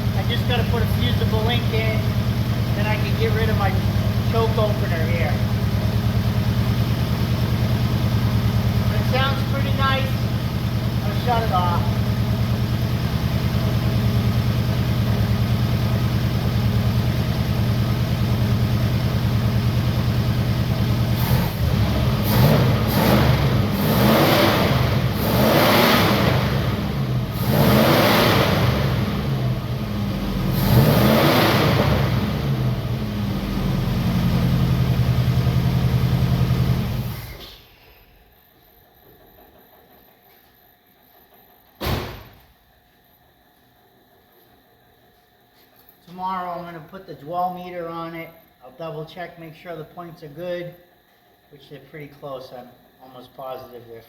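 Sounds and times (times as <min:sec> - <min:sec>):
car engine idling and revving: 0:00.0 - 0:37.4.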